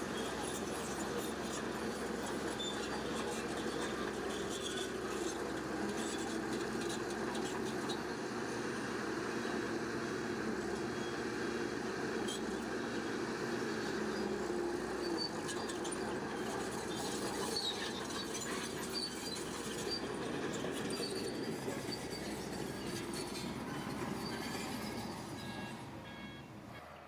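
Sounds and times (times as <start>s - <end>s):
bulldozer diesel engine running: 0.0s - 27.0s
high squeaks from tracks: 0.1s - 8.2s, 13.6s - 27.0s.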